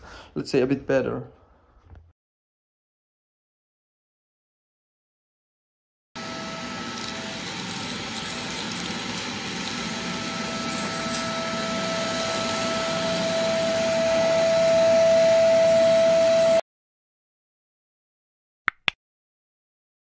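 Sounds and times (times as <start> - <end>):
vacuum cleaner running: 6.2 - 16.6.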